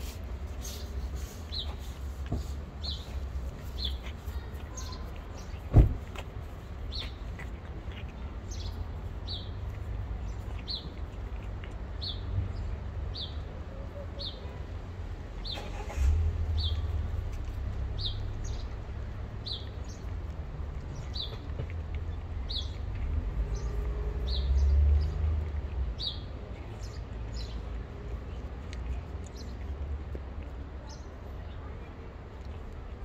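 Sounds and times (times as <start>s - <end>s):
small bird chirping: 2.8s - 13.4s, 16.4s - 29.8s.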